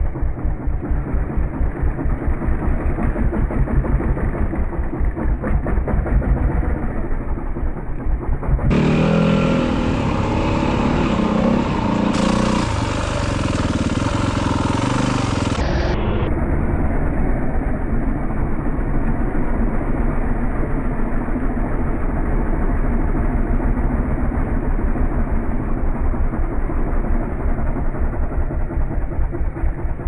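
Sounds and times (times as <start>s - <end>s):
dirt bike engine running: 0.0s - 30.0s
rushing noise: 8.7s - 16.5s.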